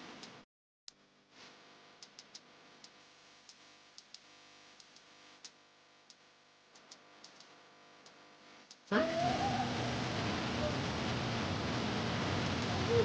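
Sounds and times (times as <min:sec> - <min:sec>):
faint steady hum: 0:00.0 - 0:13.0
soft high ticks: 0:02.0 - 0:08.9.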